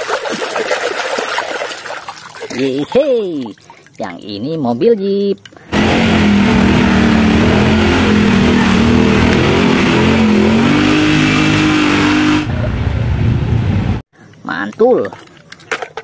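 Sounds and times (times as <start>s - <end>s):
engine revving hard: 5.7s - 14.0s.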